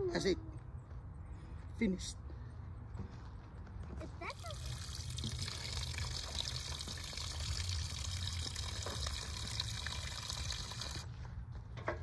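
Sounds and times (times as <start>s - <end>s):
water pouring: 4.3s - 11.1s.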